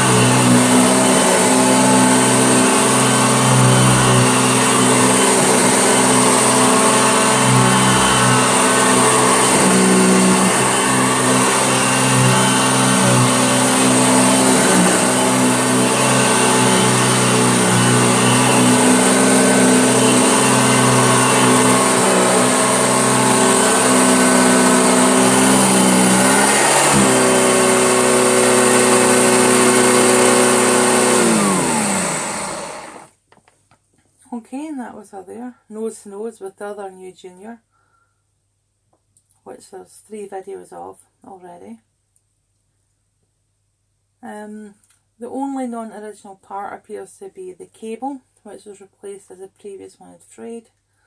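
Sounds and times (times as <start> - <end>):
vacuum cleaner motor hum: 0.0 - 33.1.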